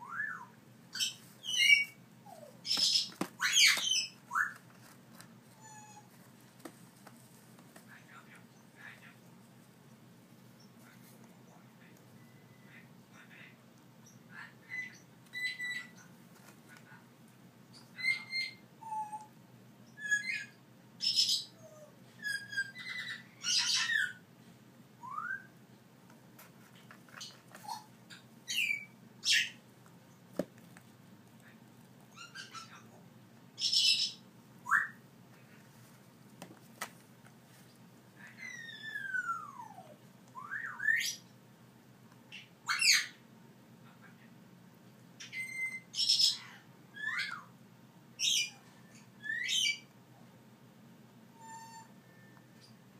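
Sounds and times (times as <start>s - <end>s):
parrots squawking and whistling: 0.0s - 4.6s, 5.6s - 6.1s, 14.6s - 16.0s, 17.7s - 24.2s, 25.0s - 25.5s, 27.2s - 29.6s, 32.1s - 32.8s, 33.6s - 35.0s, 38.3s - 41.2s, 42.3s - 43.2s, 45.2s - 47.5s, 48.2s - 49.9s, 51.3s - 52.8s.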